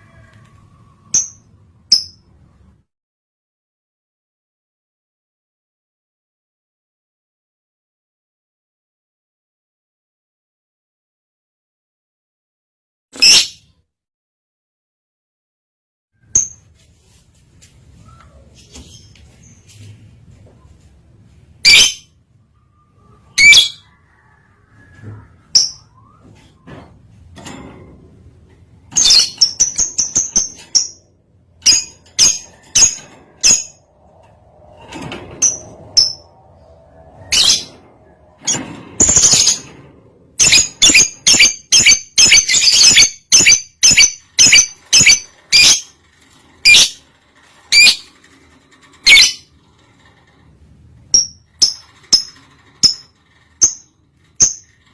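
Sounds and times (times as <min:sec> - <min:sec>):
bird rattling trill: 0:51.0 - 0:54.9.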